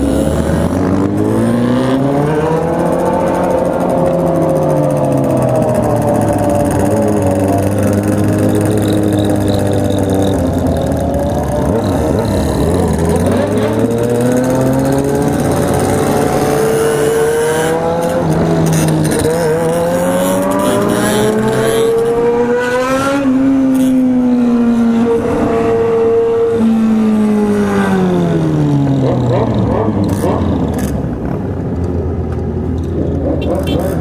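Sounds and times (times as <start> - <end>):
motorcycle engine: 0.0 - 34.0.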